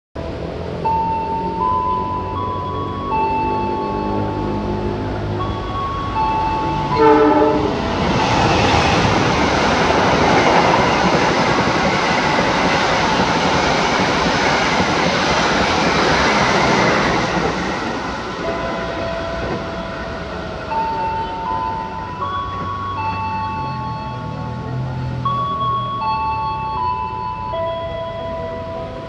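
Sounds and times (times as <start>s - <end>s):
coaches clattering over rails: 0.8s - 29.0s
train horn: 6.9s - 7.8s.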